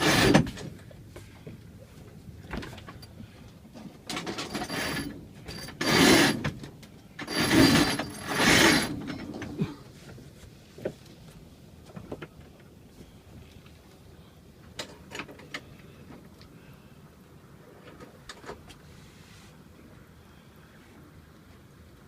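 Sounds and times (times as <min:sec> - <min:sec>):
line hauled through winch: 0:00.0 - 0:01.3, 0:02.4 - 0:10.0.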